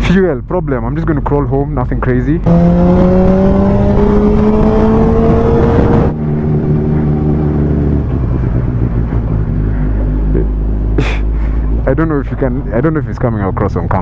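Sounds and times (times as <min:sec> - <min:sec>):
motorcycle engine accelerating: 0:02.4 - 0:12.0
wind noise: 0:02.4 - 0:13.2.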